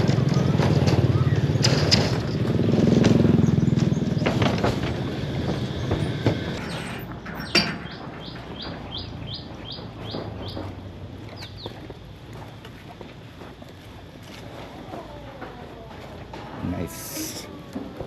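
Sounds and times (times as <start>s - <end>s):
vehicle engine running: 0.0s - 7.1s.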